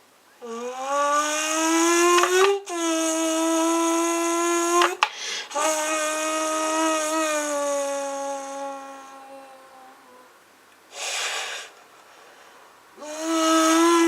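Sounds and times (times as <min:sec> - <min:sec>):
person humming into a can: 0:00.4 - 0:10.4, 0:13.0 - 0:14.0.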